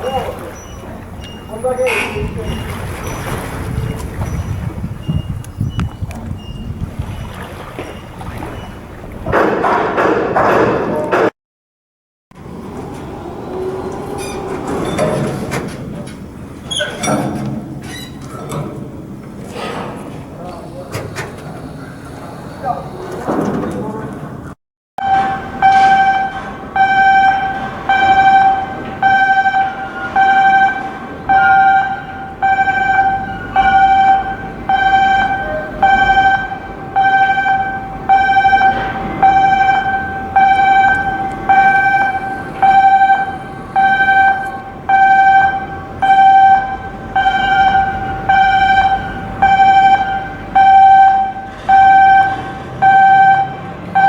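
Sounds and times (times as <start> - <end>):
electronic alarm beeping: 0.0 - 6.8, 25.0 - 54.0.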